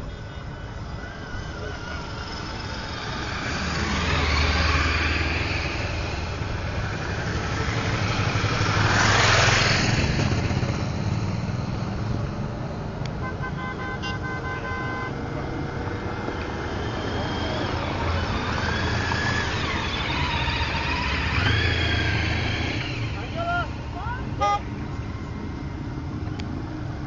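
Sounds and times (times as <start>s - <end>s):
motorcycles riding past: 0.0s - 13.7s, 14.6s - 27.0s
horn sounding: 13.2s - 15.2s, 24.2s - 24.8s.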